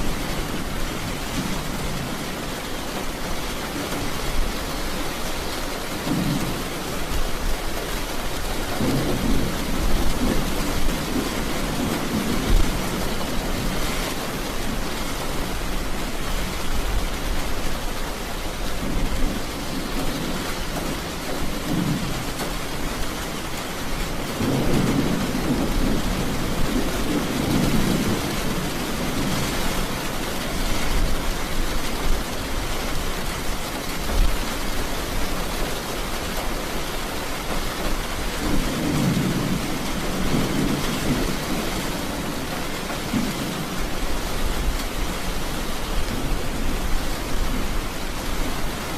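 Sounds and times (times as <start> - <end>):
heavy rain falling: 0.0 - 48.9
thunder rumbling: 6.0 - 15.7, 18.5 - 31.1, 37.4 - 48.9.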